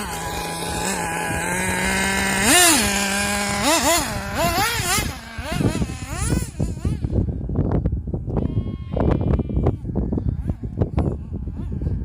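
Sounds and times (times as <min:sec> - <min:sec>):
small nitro engine revving: 0:00.0 - 0:07.4.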